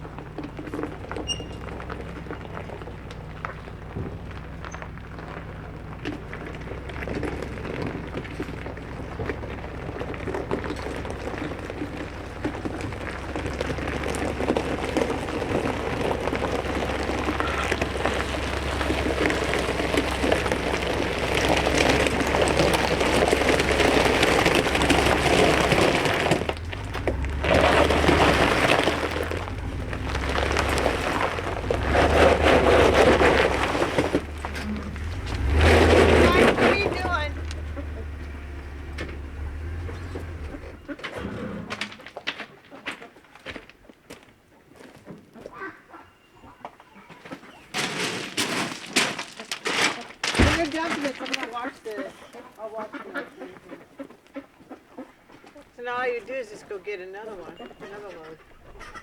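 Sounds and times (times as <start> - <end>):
crushed stone pouring: 0.1 - 40.8, 47.8 - 51.8.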